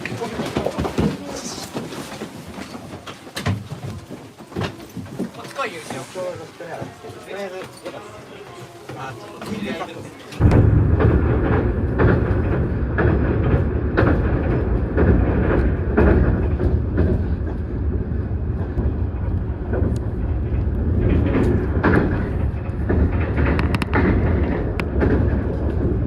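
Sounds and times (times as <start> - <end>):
train rumbling on rails: 10.4 - 26.0
train wheel clacks: 10.4 - 26.0.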